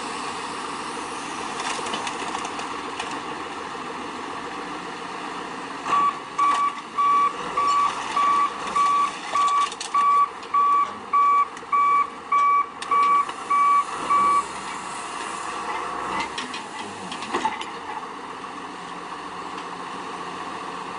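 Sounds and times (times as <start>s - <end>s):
vehicle reversing alarm beeps: 5.9s - 14.6s.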